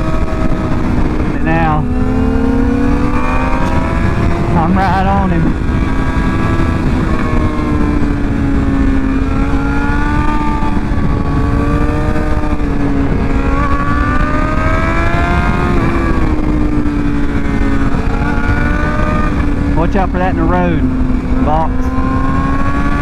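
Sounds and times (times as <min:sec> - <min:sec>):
motorcycle engine under load: 0:00.0 - 0:23.0
wind noise: 0:00.0 - 0:23.0.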